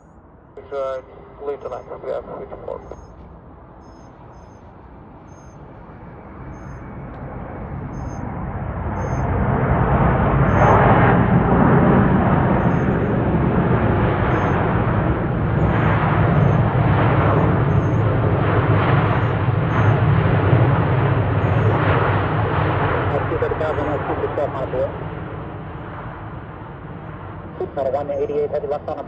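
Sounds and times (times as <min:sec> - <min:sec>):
jet engine rumble: 0:00.0 - 0:29.0.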